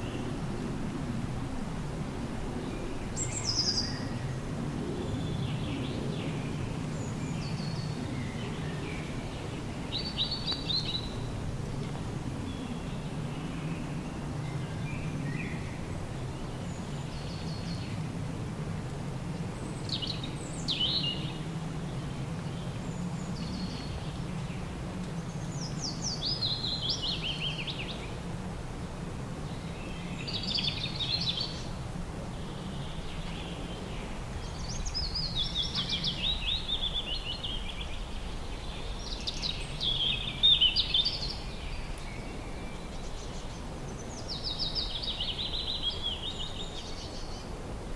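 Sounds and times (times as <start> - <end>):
songbird singing: 2.6 - 4.2, 7.0 - 11.3, 19.6 - 24.7, 25.3 - 28.2, 29.4 - 47.6.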